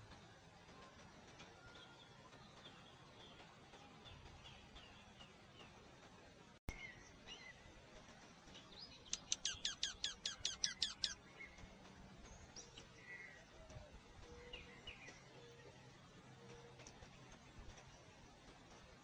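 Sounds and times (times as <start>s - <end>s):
soft bird chirps: 8.5s - 11.6s.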